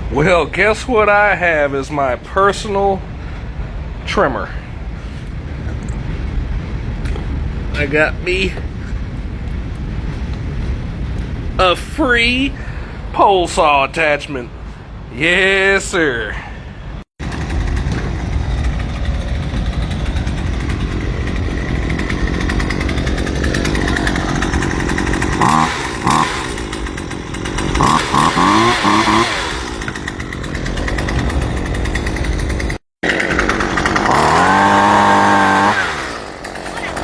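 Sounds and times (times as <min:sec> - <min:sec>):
string trimmer engine revving: 0:17.2 - 0:37.0.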